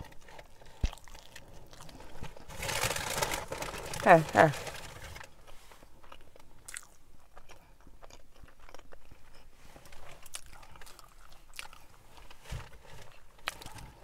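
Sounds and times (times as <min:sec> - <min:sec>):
person chewing food: 0:00.0 - 0:02.5, 0:05.4 - 0:14.0.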